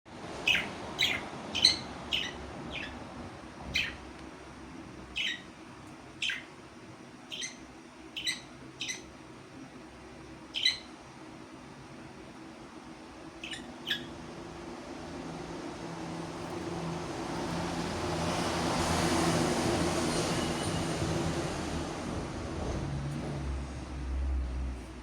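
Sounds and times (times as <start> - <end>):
parrot chirping: 0.4 - 4.1, 5.1 - 5.6, 6.2 - 6.6, 7.3 - 9.2, 10.4 - 11.0, 13.4 - 14.5.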